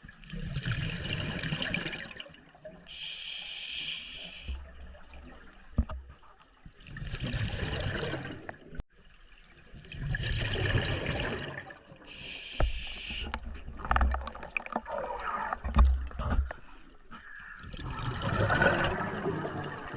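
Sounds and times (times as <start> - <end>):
exhaled bubbles gurgling underwater: 0.0 - 2.9, 6.7 - 8.8, 9.6 - 16.6, 17.2 - 19.9
regulator hissing inhale: 2.9 - 4.6, 12.1 - 13.4.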